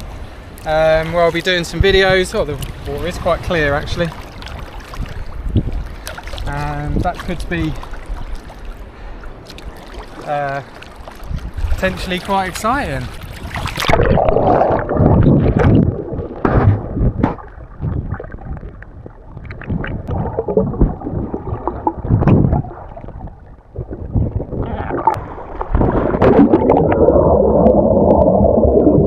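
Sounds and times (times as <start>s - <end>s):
water sloshing and gurgling: 0.0s - 29.0s.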